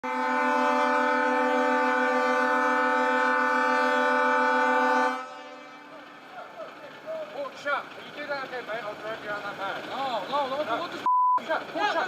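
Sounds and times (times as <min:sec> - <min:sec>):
long horn blast: 0:00.0 - 0:06.4.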